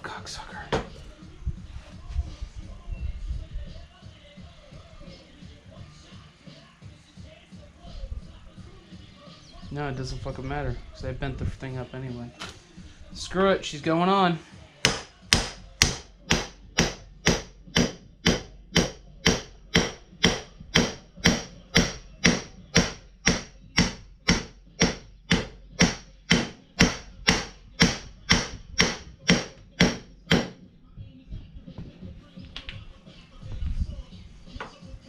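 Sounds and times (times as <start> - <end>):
hammer striking metal: 14.8 - 30.6.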